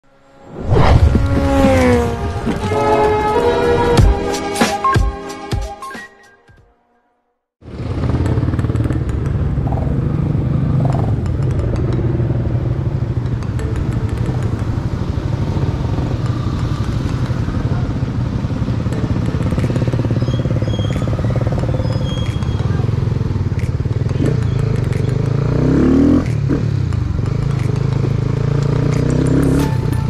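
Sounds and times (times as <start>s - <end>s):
motorcycle engine running: 1.0s - 3.2s, 7.6s - 30.0s.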